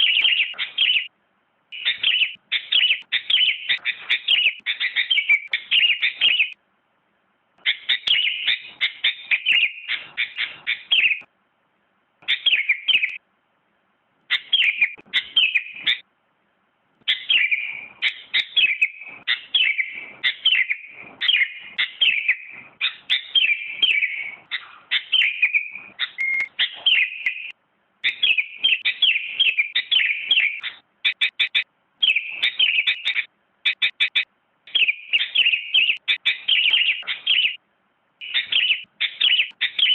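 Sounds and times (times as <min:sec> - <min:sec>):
bird chirping whistles: 0:00.0 - 0:01.1, 0:01.8 - 0:06.6, 0:07.6 - 0:11.3, 0:12.3 - 0:13.2, 0:14.3 - 0:16.0, 0:17.1 - 0:37.6, 0:38.2 - 0:39.9.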